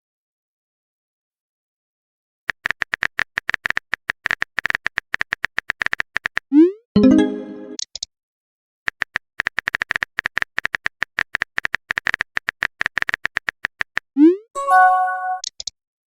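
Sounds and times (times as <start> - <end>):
message chime: 7.0 - 7.8, 14.6 - 15.4
keyboard typing clicks: 15.4 - 15.8.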